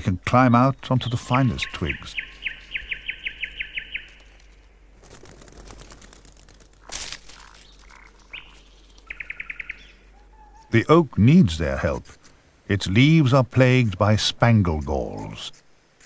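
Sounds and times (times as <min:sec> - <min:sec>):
songbird trilling: 0:00.5 - 0:04.6, 0:06.8 - 0:10.9
rustling: 0:04.0 - 0:09.1, 0:11.7 - 0:12.6.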